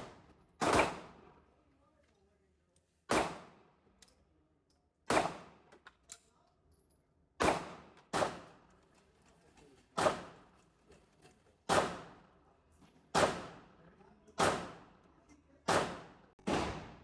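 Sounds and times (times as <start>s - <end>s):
gunshots with echo: 0.0s - 1.2s, 3.1s - 3.5s, 7.4s - 8.5s, 11.7s - 12.2s, 13.2s - 13.7s, 14.4s - 14.9s, 15.7s - 17.0s.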